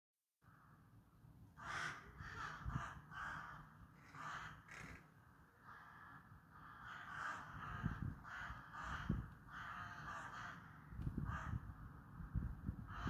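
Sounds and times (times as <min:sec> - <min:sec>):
crows cawing: 0:01.6 - 0:05.0, 0:05.7 - 0:11.7.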